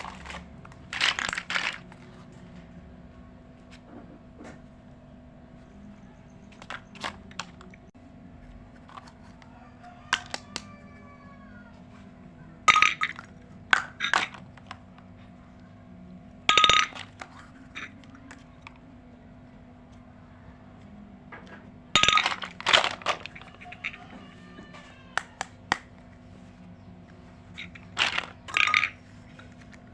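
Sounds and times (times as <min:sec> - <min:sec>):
toy pieces clicking and clinking: 0:00.0 - 0:02.2, 0:10.1 - 0:10.7, 0:12.6 - 0:15.2, 0:16.5 - 0:18.8, 0:22.0 - 0:25.9, 0:27.4 - 0:29.9
toy pieces clattering: 0:00.0 - 0:02.3, 0:06.5 - 0:07.9, 0:08.7 - 0:09.4, 0:10.1 - 0:10.7, 0:12.6 - 0:15.7, 0:16.4 - 0:18.9, 0:22.0 - 0:26.2, 0:27.2 - 0:29.9.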